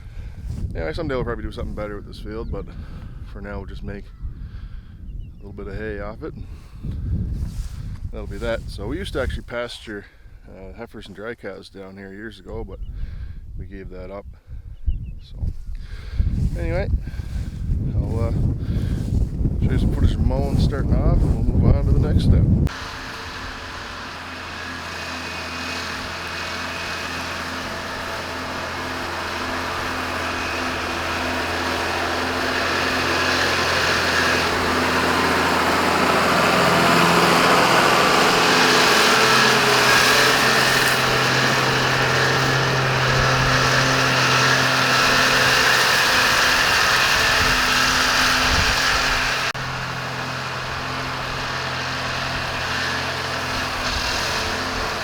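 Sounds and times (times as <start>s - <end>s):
tractor engine running: 6.5s - 9.8s, 16.1s - 55.0s.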